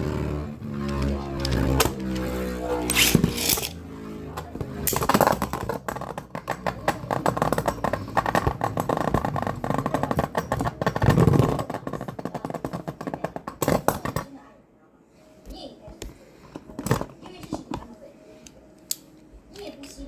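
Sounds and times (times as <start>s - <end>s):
spinning tops clicking and rattling: 0.8s - 3.8s
spinning tops launch rush: 1.1s - 3.8s.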